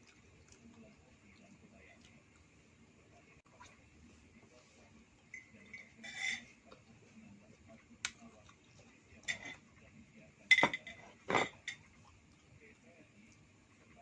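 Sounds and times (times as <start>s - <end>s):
cutlery clinking on dishes: 5.3s - 6.6s, 9.2s - 9.6s, 10.5s - 11.9s.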